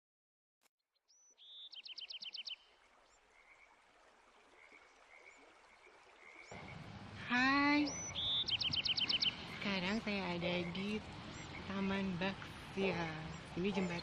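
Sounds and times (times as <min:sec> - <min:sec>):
high chirping animal call: 0:07.4 - 0:10.0.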